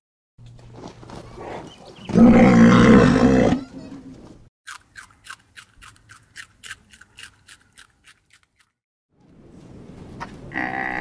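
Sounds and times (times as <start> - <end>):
rabbit crunching a carrot: 4.7 - 8.8.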